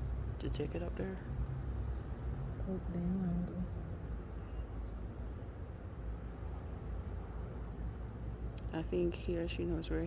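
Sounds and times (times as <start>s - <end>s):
low background rumble: 0.0s - 6.0s
crickets chirping chorus: 0.0s - 10.0s.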